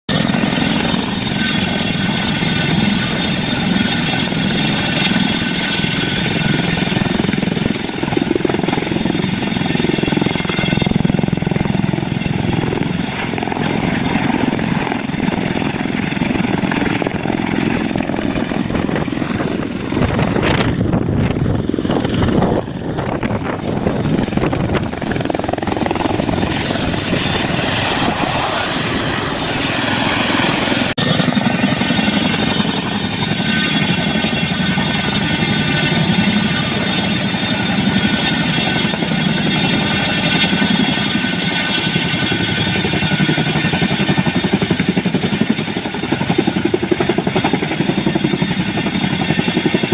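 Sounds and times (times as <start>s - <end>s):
helicopter rotor roar: 0.1s - 49.9s
high turbine whine: 0.1s - 49.9s.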